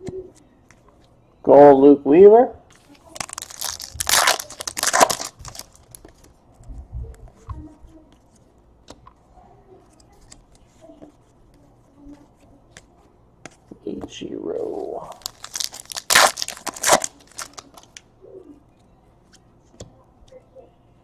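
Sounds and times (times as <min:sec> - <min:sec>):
cards clicking and rustling: 0:02.7 - 0:06.4, 0:15.1 - 0:18.0
wrapper tearing and crinkling: 0:03.0 - 0:06.0, 0:15.1 - 0:18.0.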